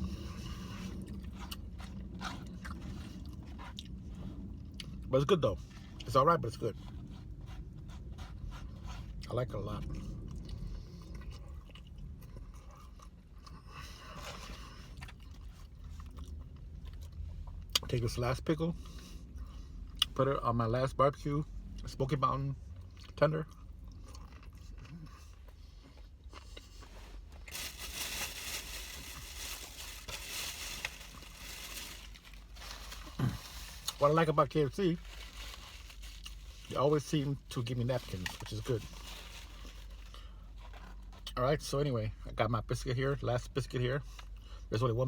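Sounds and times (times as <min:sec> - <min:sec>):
person chewing food: 0:00.0 - 0:05.1, 0:07.0 - 0:17.8, 0:22.8 - 0:27.6
paper crinkling and rustling: 0:27.4 - 0:36.8, 0:37.8 - 0:40.9.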